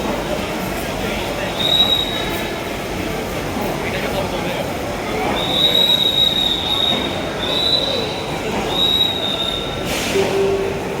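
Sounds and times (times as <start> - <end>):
train wheel squeal: 1.5 - 2.8, 5.1 - 11.0.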